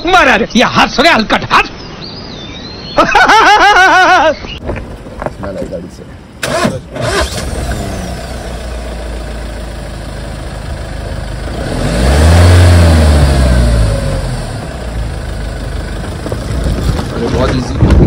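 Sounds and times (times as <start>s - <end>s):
diesel engine idling and revving: 6.3s - 17.7s.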